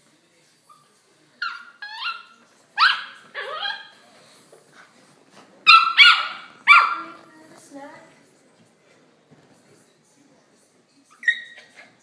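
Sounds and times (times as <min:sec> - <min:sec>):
puppy whining and yipping: 0:01.4 - 0:03.9, 0:11.1 - 0:12.0.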